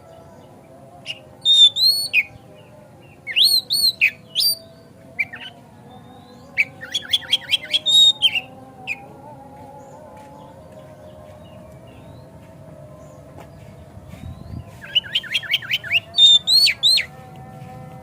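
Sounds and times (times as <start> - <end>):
bird whistling song: 1.1 - 2.4, 3.3 - 9.1, 14.2 - 17.1.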